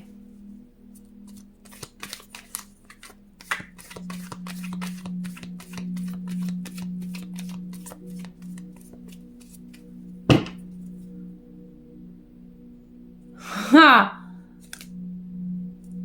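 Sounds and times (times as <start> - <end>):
steady low drone: 0.0 - 16.0
cards being shuffled: 1.3 - 10.6, 14.6 - 14.9.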